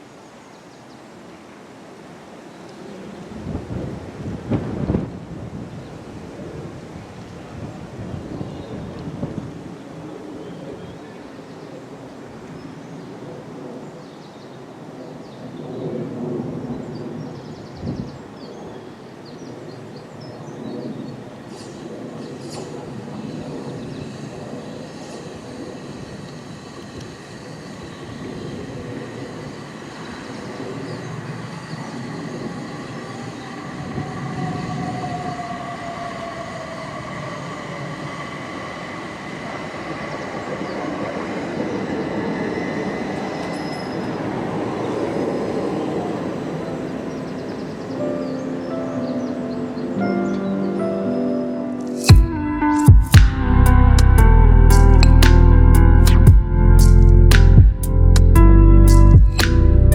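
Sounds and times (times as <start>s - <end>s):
train rumbling past: 2.8s - 11.4s, 21.2s - 50.3s
steady high-pitched tones: 21.4s - 45.3s, 47.6s - 59.9s
tone sliding down in pitch: 51.8s - 59.9s.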